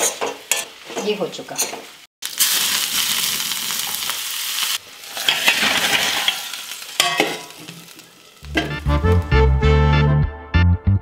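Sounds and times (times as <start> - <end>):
vegetables sizzling in a wok: 0.0 - 9.4
metal spatula stirring and scraping: 5.1 - 7.8.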